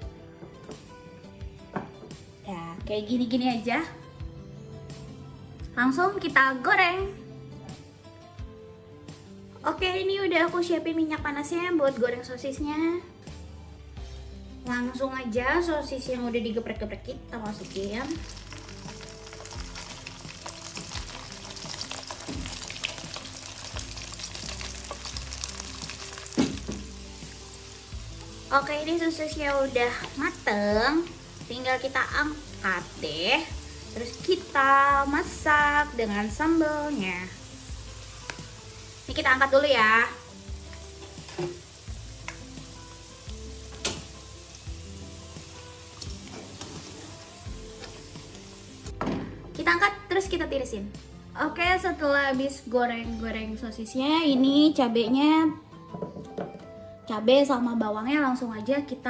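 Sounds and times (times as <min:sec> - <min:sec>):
sausage sizzling in hot oil: 0:17.4 - 0:49.0
spatula scraping wok: 0:46.2 - 0:48.1.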